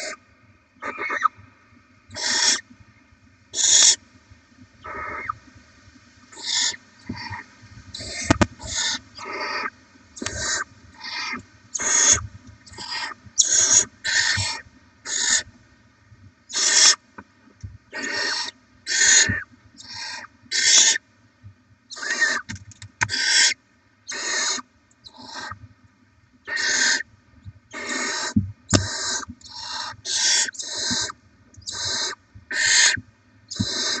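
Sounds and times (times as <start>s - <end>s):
owl chicks hissing calls: 0.8s - 1.3s, 2.1s - 2.6s, 3.5s - 4.0s, 4.8s - 5.4s, 6.3s - 15.5s, 16.5s - 17.0s, 17.9s - 21.0s, 21.9s - 25.6s, 26.5s - 27.1s, 27.7s - 34.0s.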